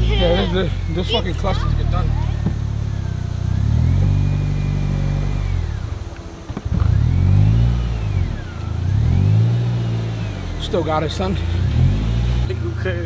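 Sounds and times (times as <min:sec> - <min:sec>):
car engine revving hard: 0:00.0 - 0:13.0.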